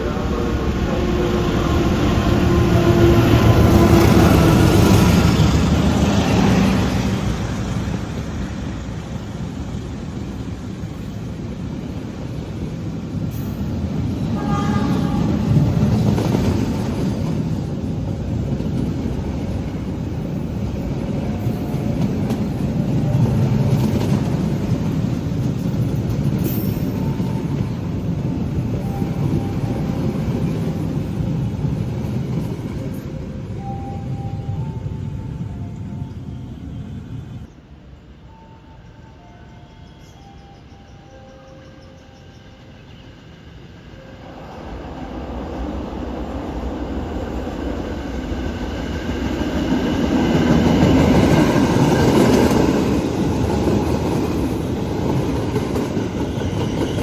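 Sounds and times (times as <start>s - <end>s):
train wheels rumbling on rails: 0.0s - 38.4s, 39.1s - 57.0s
short train horn: 14.3s - 15.8s.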